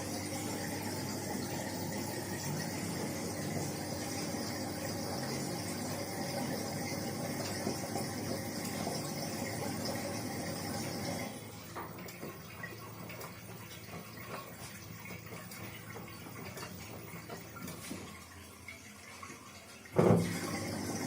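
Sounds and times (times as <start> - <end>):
rushing water in washing machine: 0.0 - 21.0
washing machine hum and whine: 0.0 - 21.0.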